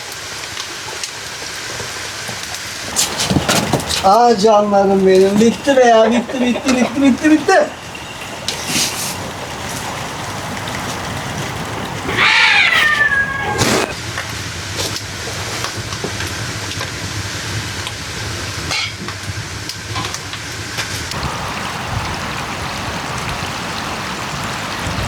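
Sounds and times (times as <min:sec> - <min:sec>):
steady hiss: 0:00.0 - 0:23.1
cat meowing: 0:12.0 - 0:14.0.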